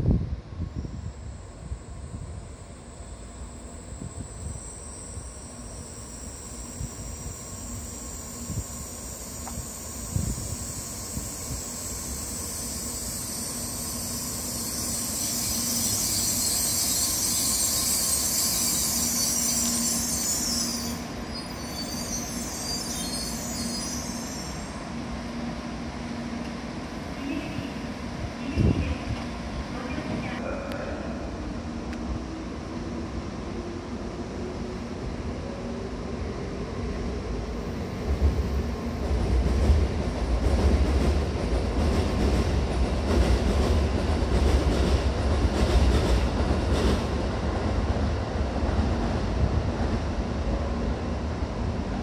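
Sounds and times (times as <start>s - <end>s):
train brakes squealing: 0.7s - 24.9s
train rushing hiss: 0.7s - 26.3s.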